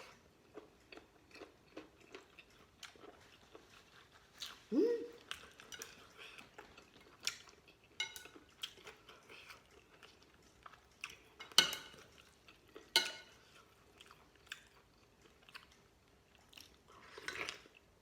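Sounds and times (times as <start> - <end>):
utensils clinking on a bowl: 7.2 - 8.8, 11.2 - 12.2, 12.8 - 13.5.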